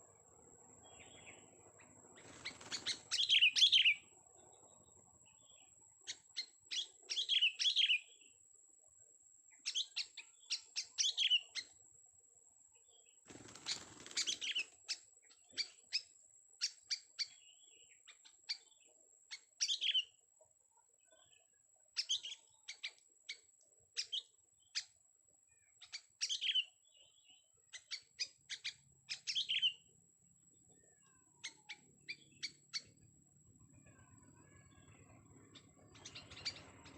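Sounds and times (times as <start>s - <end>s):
bird chirping: 0.0s - 8.4s, 9.5s - 11.8s, 12.7s - 36.9s
faint high-pitched whine: 0.0s - 36.9s.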